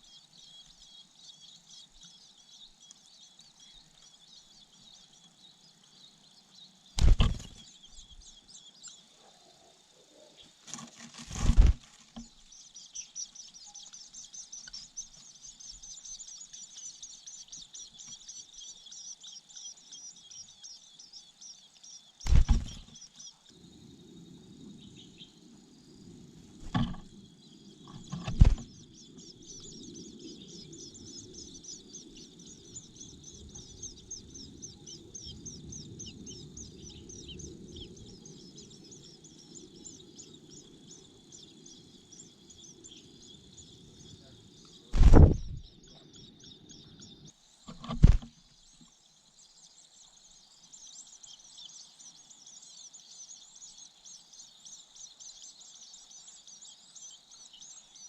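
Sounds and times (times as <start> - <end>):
nestlings chirring: 0.0 - 23.6, 26.1 - 58.0
loud thumps: 7.0 - 7.6, 22.3 - 22.9, 26.6 - 27.1, 28.0 - 28.7, 45.0 - 45.6.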